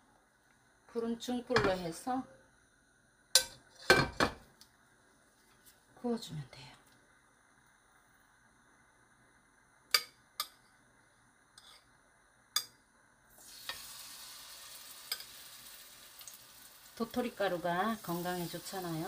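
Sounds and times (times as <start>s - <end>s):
batter frying in hot oil: 12.5s - 19.0s.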